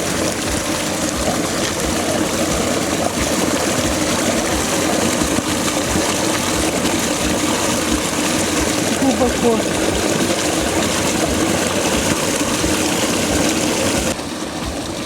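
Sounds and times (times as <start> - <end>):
river rushing under ice: 0.0 - 15.0.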